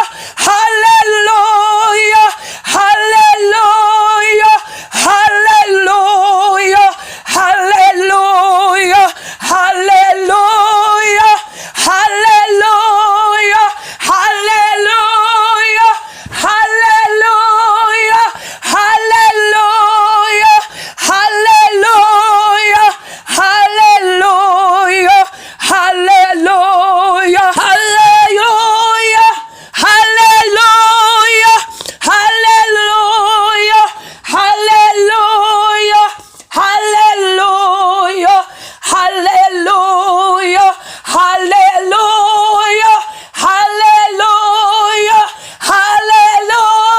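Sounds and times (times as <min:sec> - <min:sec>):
singer breathing: 0:00.0 - 0:00.4, 0:02.3 - 0:02.7, 0:04.6 - 0:05.0, 0:06.9 - 0:07.3, 0:09.1 - 0:09.5, 0:11.4 - 0:11.8, 0:13.7 - 0:14.1, 0:16.0 - 0:16.4, 0:18.3 - 0:18.7, 0:20.6 - 0:21.0, 0:22.9 - 0:23.3, 0:25.3 - 0:25.6, 0:29.4 - 0:29.8, 0:33.9 - 0:34.3, 0:36.2 - 0:36.5, 0:38.4 - 0:38.9, 0:40.7 - 0:41.1, 0:43.0 - 0:43.4, 0:45.3 - 0:45.6
woman singing unaccompanied: 0:00.0 - 0:46.9.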